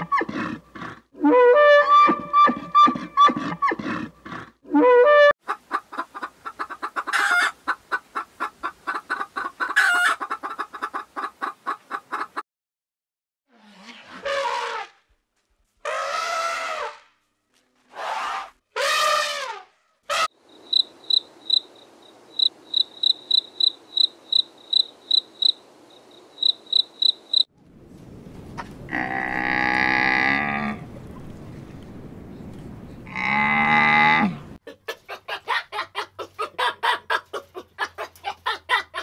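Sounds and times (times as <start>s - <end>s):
cricket chirping: 20.4s - 27.5s
cow mooing: 28.9s - 30.9s, 33.1s - 34.6s.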